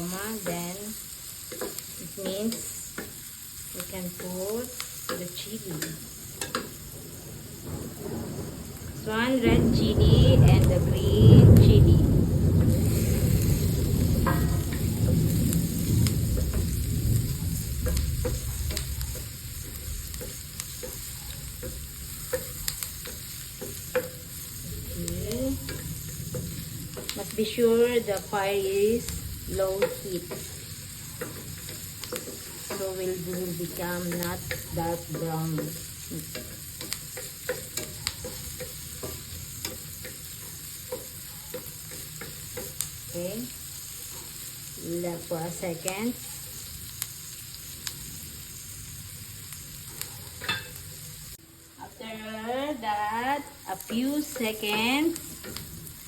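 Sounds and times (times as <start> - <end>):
vegetables sizzling in a pan: 0.0 - 56.0
spatula scraping and tapping pan: 1.3 - 7.7, 17.8 - 44.5, 49.9 - 50.9, 53.8 - 56.0.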